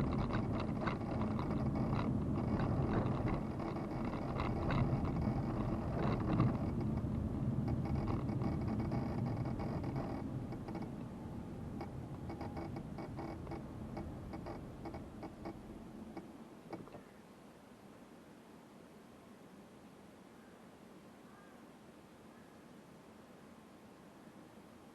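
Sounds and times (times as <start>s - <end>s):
light clicks and ticks: 0.0s - 11.0s, 11.8s - 17.0s
car engine: 0.0s - 15.7s
road noise: 0.0s - 17.0s.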